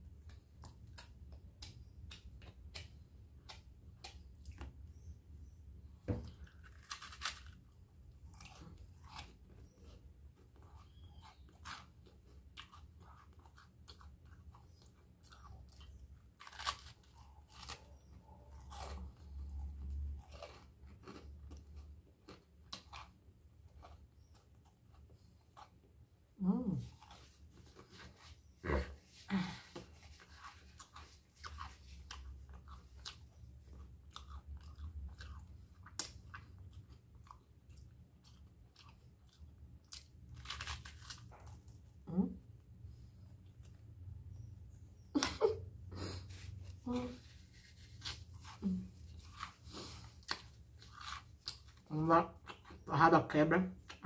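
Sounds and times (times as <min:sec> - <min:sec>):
chewing crunchy toast: 0:06.2 - 0:28.8, 0:30.1 - 0:42.6, 0:46.0 - 0:52.9.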